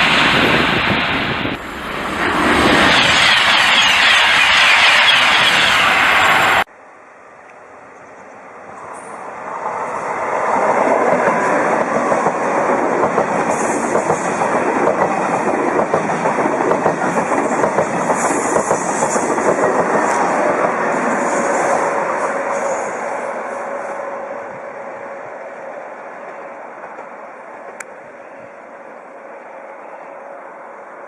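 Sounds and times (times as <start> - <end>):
high-speed train passing: 0.0 - 31.0.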